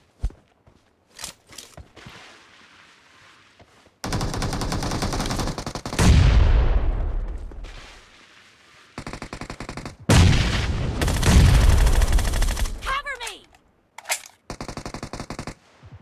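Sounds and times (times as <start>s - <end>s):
video game automatic gunfire: 11.0s - 12.8s.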